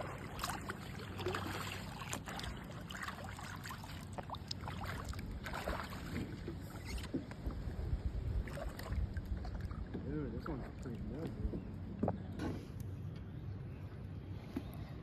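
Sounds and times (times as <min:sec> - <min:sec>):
small splashes: 0:00.0 - 0:07.3, 0:08.4 - 0:11.2
water lapping around a kayak: 0:00.0 - 0:15.0.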